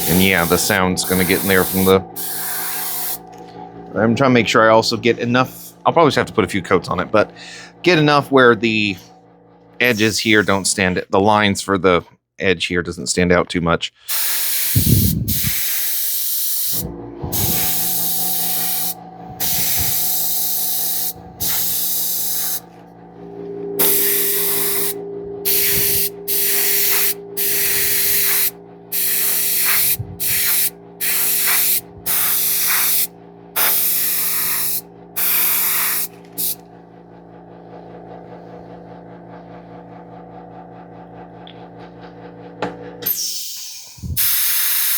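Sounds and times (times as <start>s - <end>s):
airbrush spraying hiss: 0.0s - 3.4s, 14.1s - 22.7s, 23.8s - 36.6s, 43.3s - 44.9s
steady low hum: 0.0s - 11.6s, 14.1s - 43.2s.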